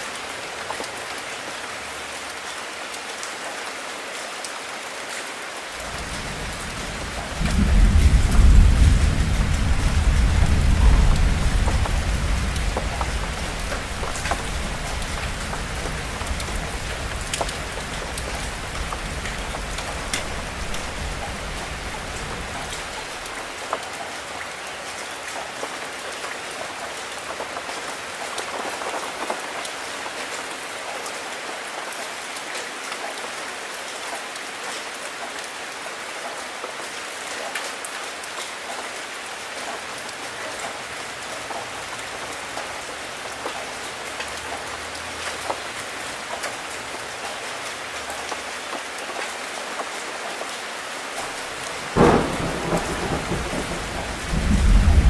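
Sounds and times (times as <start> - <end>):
steady rain on leaves: 0.0 - 55.0
low rumble of thunder: 5.9 - 23.2, 51.8 - 55.0.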